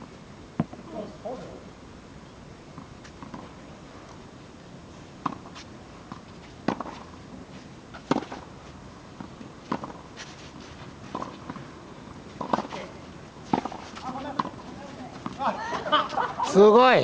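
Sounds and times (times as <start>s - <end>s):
tennis balls struck by rackets: 5.2s - 7.2s, 7.9s - 8.5s, 9.2s - 10.5s, 11.1s - 11.7s, 12.3s - 15.9s.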